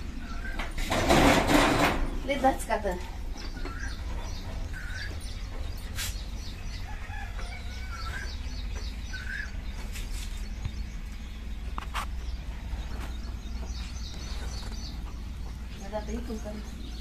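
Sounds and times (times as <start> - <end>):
louder lower bird calls: 0.0 - 0.8, 3.2 - 15.2
birds chirping: 0.0 - 17.0
low steady rumble: 0.0 - 17.0.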